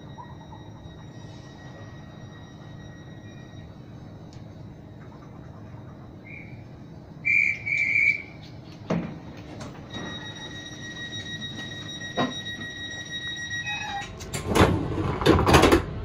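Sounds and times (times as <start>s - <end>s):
high-pitched electronic tone: 0.0s - 8.4s, 9.9s - 14.1s
train humming at platform: 0.0s - 16.0s
guard's whistle blasts: 7.2s - 8.4s.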